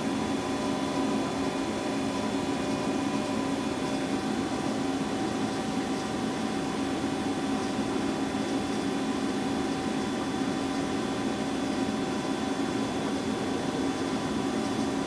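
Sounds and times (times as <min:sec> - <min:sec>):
boring mill machine humming: 0:00.0 - 0:15.0.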